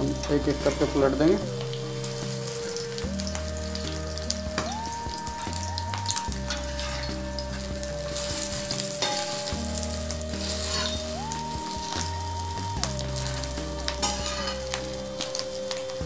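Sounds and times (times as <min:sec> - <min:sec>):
food sizzling in hot oil: 0:00.0 - 0:16.0
metal spatula scraping pan: 0:05.4 - 0:15.5.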